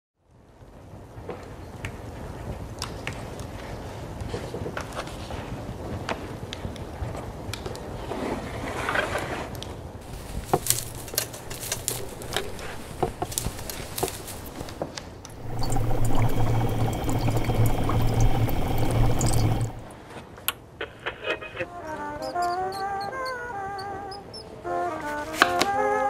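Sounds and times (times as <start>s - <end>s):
small clicks and knocks: 10.1s - 19.9s
liquid pouring into glassware: 10.4s - 19.9s
low hum with high ringing: 15.4s - 19.9s.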